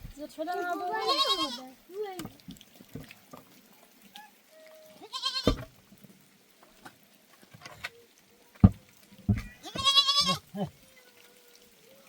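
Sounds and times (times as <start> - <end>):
sheep or goat bleating: 0.9 - 1.7, 5.0 - 5.6, 9.4 - 10.7.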